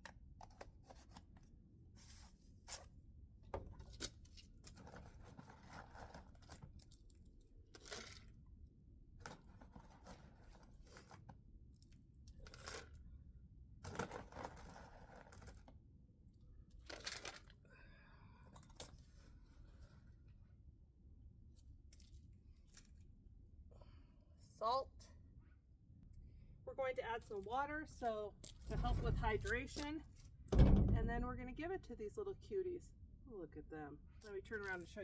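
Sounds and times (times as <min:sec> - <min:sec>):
rustles scrapes and clicks of containers: 0:03.7 - 0:08.4, 0:09.2 - 0:11.4, 0:12.3 - 0:13.1, 0:13.8 - 0:15.8.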